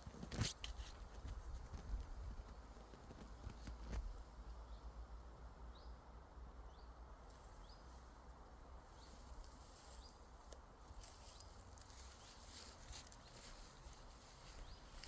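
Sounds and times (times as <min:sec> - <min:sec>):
small bird chirping: 0:06.7 - 0:08.0, 0:11.2 - 0:15.0.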